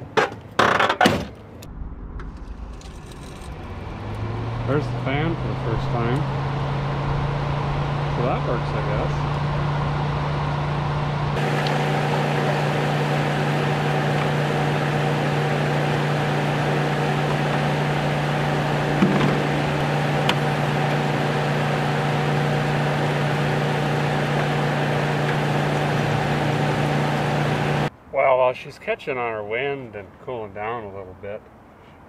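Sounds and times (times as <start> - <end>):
car engine idling: 1.6 - 27.9
radiator cooling fan hum: 7.7 - 27.9.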